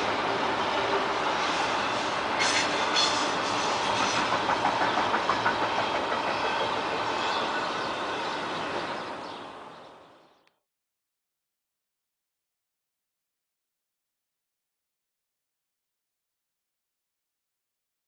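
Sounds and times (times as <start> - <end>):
freight train rumble: 0.0 - 10.3
train wheels clacking over rail joints: 0.9 - 7.9.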